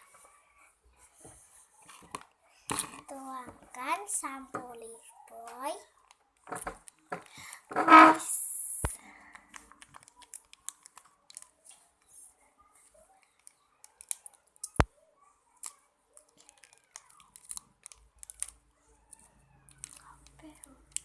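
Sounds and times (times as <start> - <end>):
plastic packaging crinkling: 9.5 - 11.8, 15.6 - 18.6, 19.7 - 21.0.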